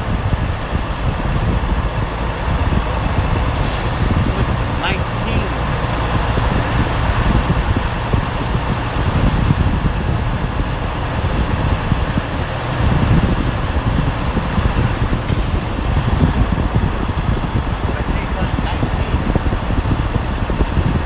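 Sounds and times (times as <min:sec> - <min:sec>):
truck engine and road rumble: 0:00.0 - 0:21.0
fan-like hiss: 0:03.3 - 0:06.1.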